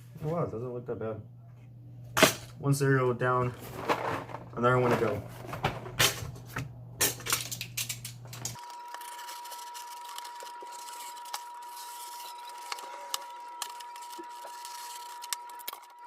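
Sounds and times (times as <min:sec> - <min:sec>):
steady high-pitched tone: 0:08.6 - 0:16.0.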